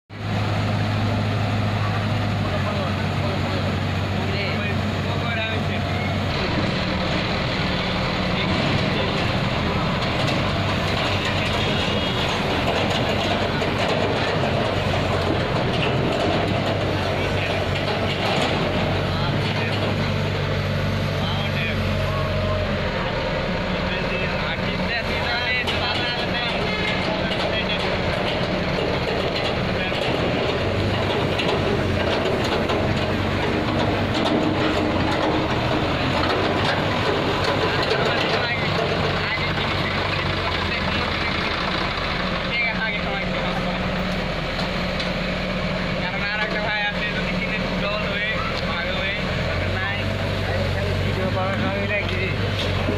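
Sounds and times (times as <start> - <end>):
diesel machinery running: 0.1 - 52.9
light clatter: 8.4 - 20.2, 24.9 - 41.9.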